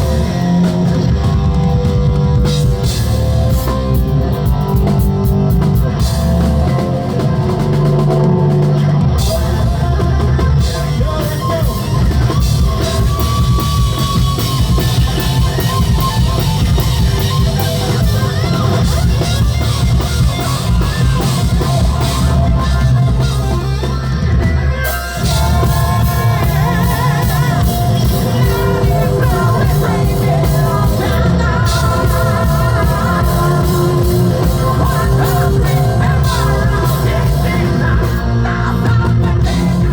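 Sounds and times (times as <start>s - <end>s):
bass guitar: 0.0s - 39.9s
distorted guitars: 0.0s - 39.9s
drum kit: 0.0s - 39.9s
lead singer: 0.0s - 39.9s.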